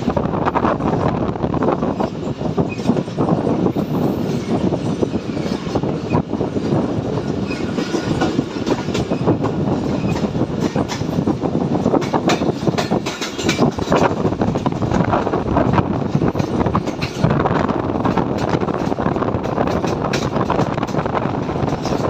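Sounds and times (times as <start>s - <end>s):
train rumbling on track: 0.0s - 22.0s
wheels clicking and clattering: 11.9s - 22.0s.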